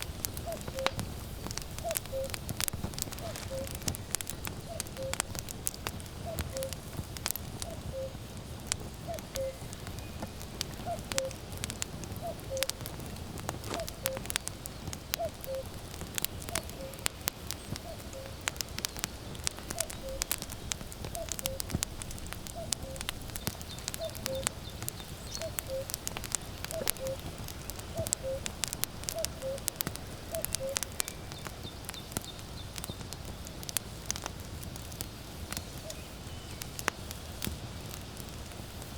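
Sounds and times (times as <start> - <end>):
wood fire crackling: 0.0 - 38.9
cuckoo calling: 0.4 - 3.9, 4.5 - 5.3, 6.2 - 6.9, 7.6 - 8.2, 9.0 - 10.2, 10.8 - 11.5, 12.2 - 12.8, 13.7 - 14.5, 15.1 - 15.7, 16.5 - 19.0, 19.6 - 20.4, 21.1 - 21.7, 22.5 - 31.5.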